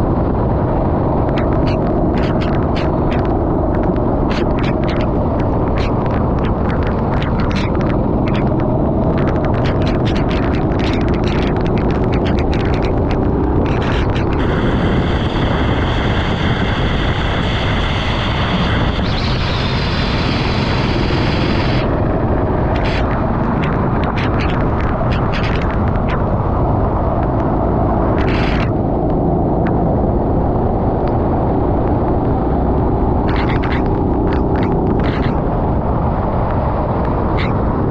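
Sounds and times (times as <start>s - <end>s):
high steady whine: 0.0s - 37.9s
kart engine racing: 1.0s - 26.4s.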